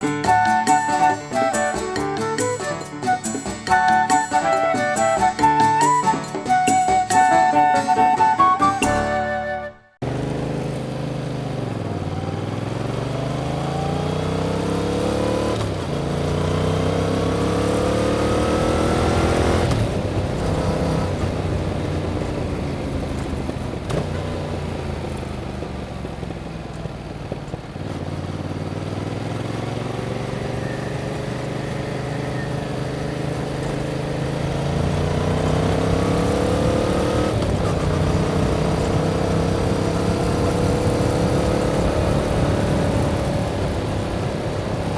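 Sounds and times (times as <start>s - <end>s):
motorcycle engine shifting gears: 10.0s - 44.9s.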